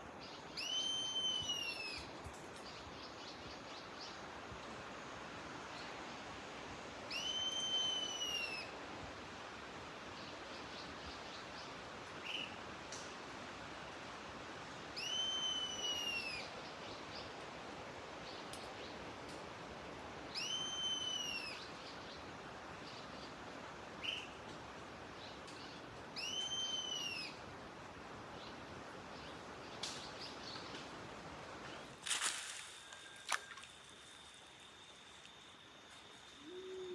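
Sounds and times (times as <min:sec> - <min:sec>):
bird whistled calls: 0:00.6 - 0:02.1, 0:07.1 - 0:08.7, 0:15.0 - 0:16.5, 0:20.3 - 0:21.7, 0:26.2 - 0:27.4, 0:35.9 - 0:36.9.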